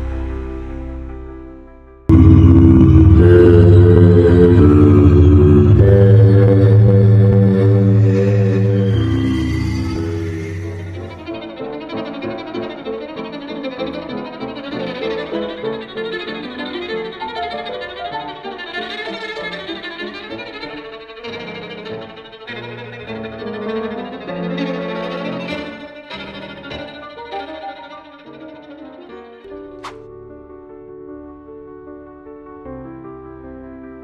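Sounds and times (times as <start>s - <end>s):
violin-led background music: 0.0s - 1.7s, 4.6s - 30.1s.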